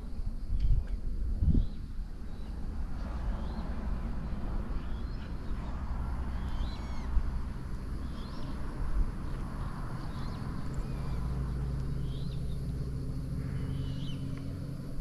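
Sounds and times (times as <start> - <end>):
steady low rumble: 0.0 - 15.0
birds chirping: 4.7 - 7.3, 7.9 - 14.6.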